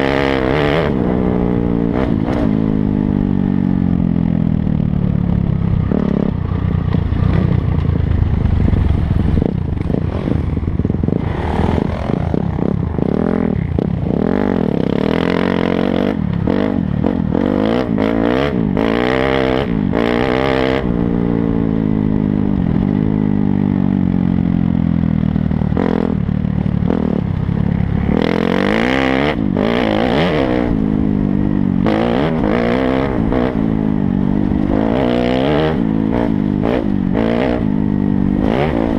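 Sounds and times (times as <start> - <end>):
dirt bike engine revving: 0.0 - 4.2, 5.5 - 6.4, 8.7 - 23.4, 25.7 - 38.9
rushing noise: 7.1 - 15.7.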